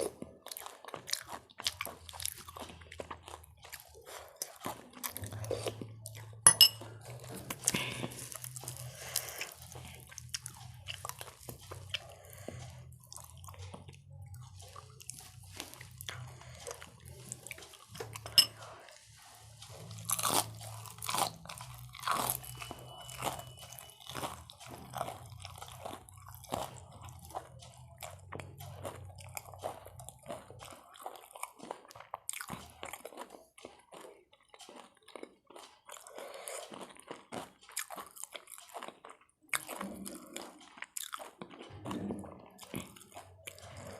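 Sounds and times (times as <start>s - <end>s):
person chewing crunchy food: 0.0s - 43.9s.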